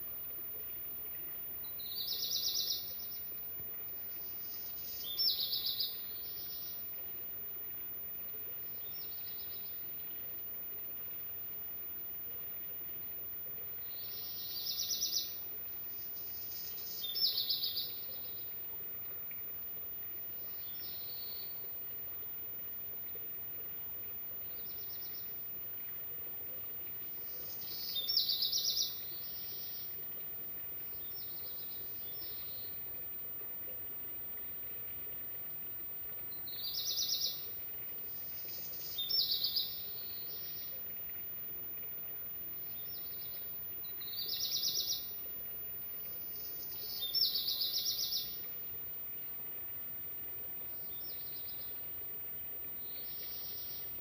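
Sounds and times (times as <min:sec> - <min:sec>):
steady background hiss: 0:00.0 - 0:54.0
songbird trilling: 0:01.7 - 0:03.1, 0:14.0 - 0:15.4, 0:27.6 - 0:29.8, 0:36.5 - 0:37.4, 0:44.0 - 0:45.1, 0:46.8 - 0:48.3.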